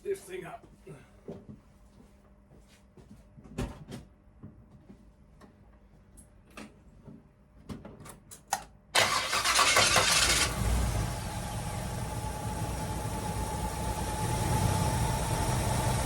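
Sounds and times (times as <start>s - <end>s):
car engine starting and idling: 9.0s - 16.0s.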